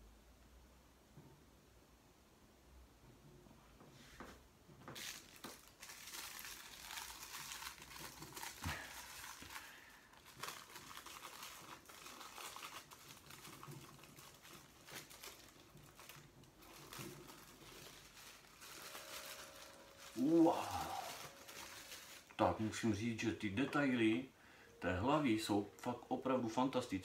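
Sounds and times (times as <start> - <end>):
packaging crinkling and rustling: 4.8 - 24.3.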